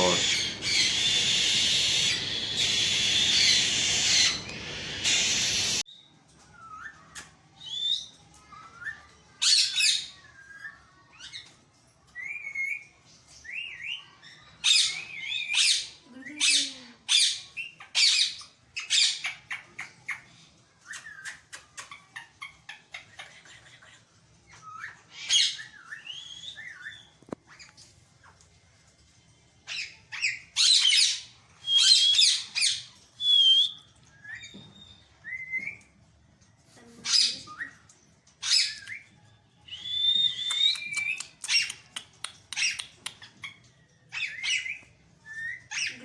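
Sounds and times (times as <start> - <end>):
parakeets squawking: 0.0 - 5.8
whistled chirps: 0.0 - 5.8, 31.6 - 32.5, 33.2 - 35.9, 39.0 - 41.4.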